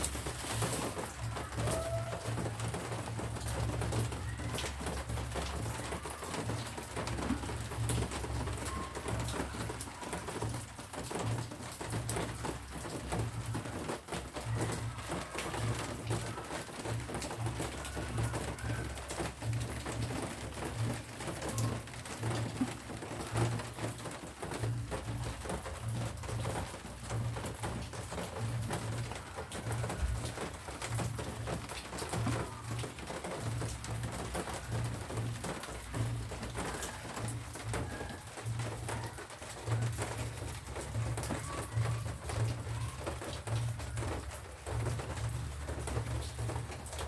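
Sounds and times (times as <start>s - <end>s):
pigeon cooing: 0.0s - 10.6s
light rain dripping: 0.0s - 47.0s.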